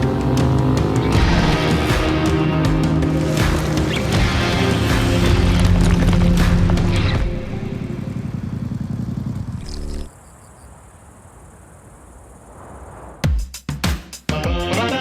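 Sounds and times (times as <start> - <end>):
motorcycle engine rumbling: 0.0 - 10.1.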